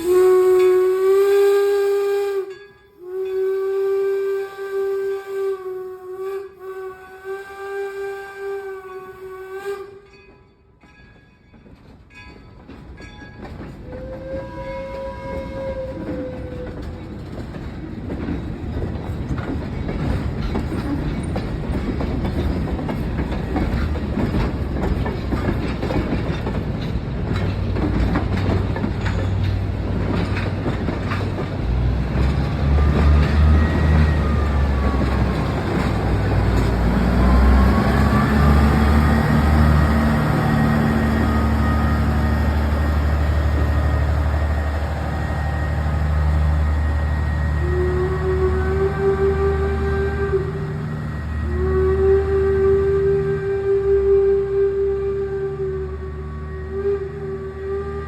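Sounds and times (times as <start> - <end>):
locomotive whistle blast: 0.0 - 10.2, 13.8 - 16.8, 32.6 - 58.0
train wheels clickety-clack: 9.6 - 55.3.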